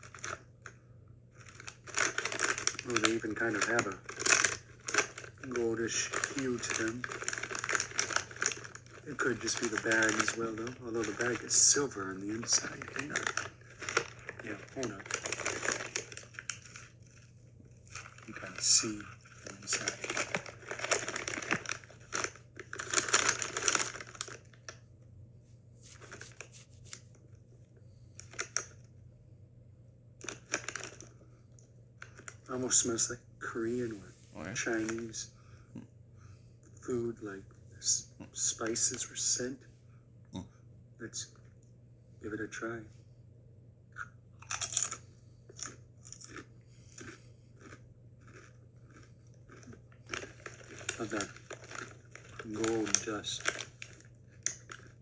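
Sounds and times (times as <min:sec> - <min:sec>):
chip bag crinkling: 0:00.0 - 0:00.4, 0:01.4 - 0:24.8, 0:25.8 - 0:27.1, 0:28.2 - 0:28.8, 0:30.2 - 0:31.1, 0:32.0 - 0:33.1, 0:44.4 - 0:45.0, 0:45.6 - 0:55.0.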